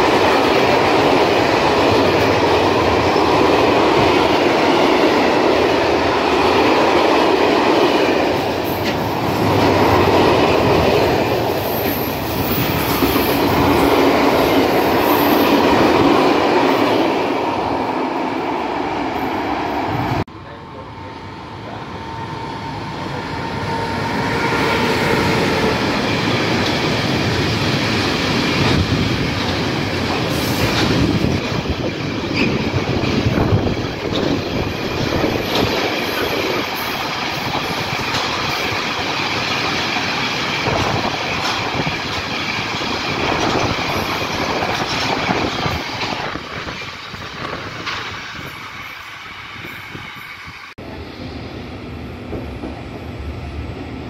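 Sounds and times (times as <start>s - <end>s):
freight train wheels clattering: 24.7s - 50.4s.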